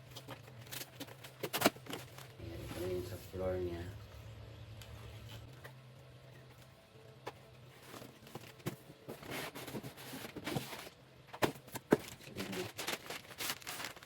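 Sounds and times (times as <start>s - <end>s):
rustling packaging: 0.0s - 3.1s, 7.7s - 14.0s.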